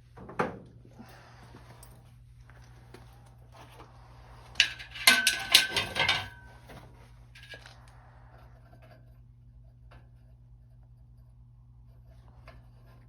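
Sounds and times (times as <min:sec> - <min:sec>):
metal pieces clinking: 0:04.6 - 0:06.4.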